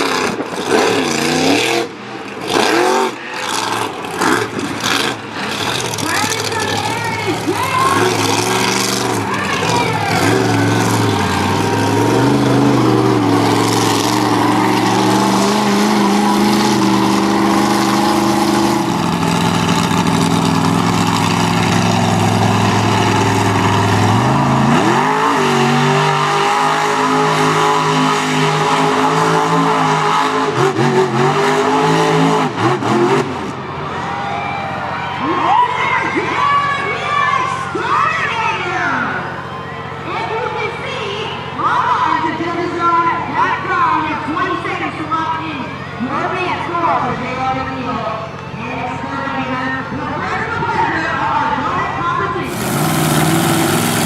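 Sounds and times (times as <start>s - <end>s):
monster truck engine revving: 0.0s - 34.3s, 52.4s - 54.0s.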